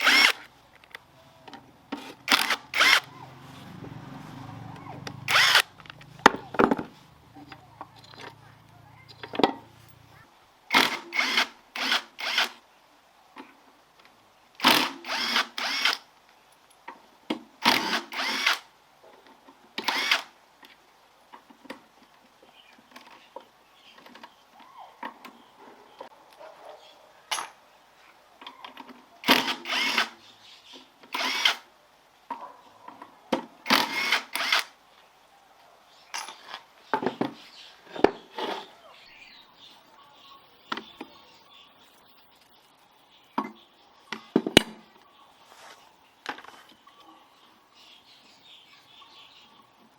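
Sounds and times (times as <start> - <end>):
power drill short bursts: 0.0 - 0.5, 2.0 - 3.1, 5.2 - 5.7, 10.7 - 12.6, 14.6 - 16.0, 17.6 - 18.7, 19.8 - 20.3, 29.2 - 30.2, 31.1 - 31.7, 33.7 - 34.7.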